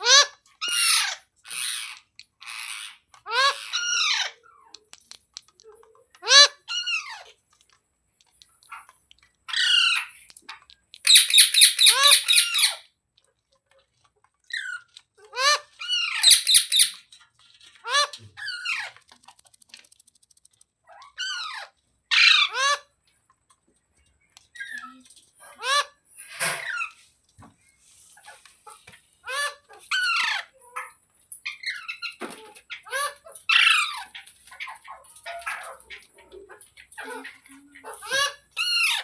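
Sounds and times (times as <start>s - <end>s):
parrot squawking: 0.0s - 4.5s, 6.2s - 7.3s, 9.5s - 10.2s, 11.1s - 12.9s, 14.5s - 17.1s, 20.9s - 22.9s, 36.8s - 39.0s.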